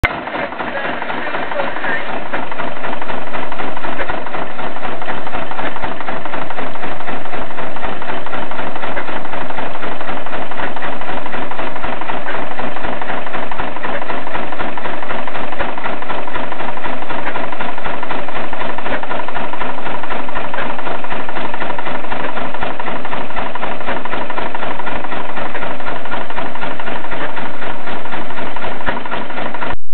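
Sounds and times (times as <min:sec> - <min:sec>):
diesel engine knocking: 0:00.0 - 0:29.8.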